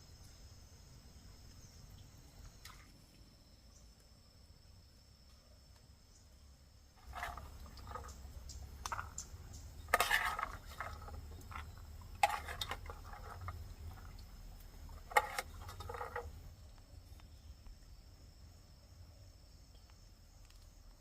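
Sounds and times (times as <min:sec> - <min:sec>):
objects clattering and knocking: 0:07.0 - 0:16.5.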